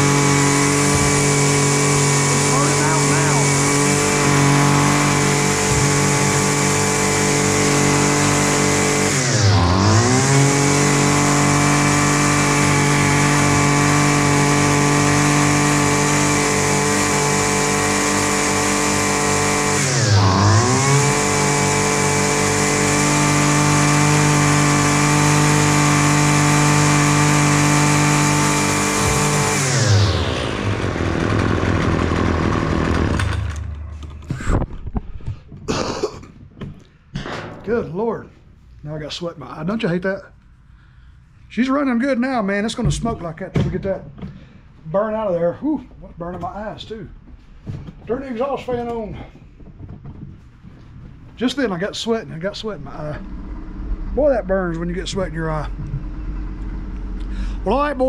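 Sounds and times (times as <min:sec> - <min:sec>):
string trimmer engine revving: 0:00.0 - 0:34.6, 0:51.6 - 0:58.0.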